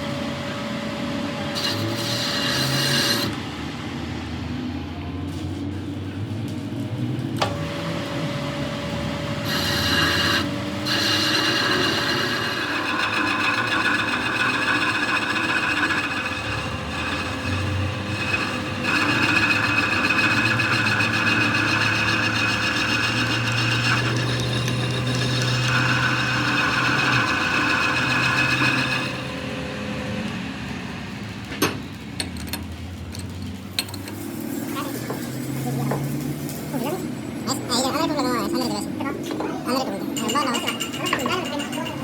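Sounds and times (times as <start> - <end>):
workshop machine whining: 0.0 - 42.0
rasping scraping: 9.4 - 29.3.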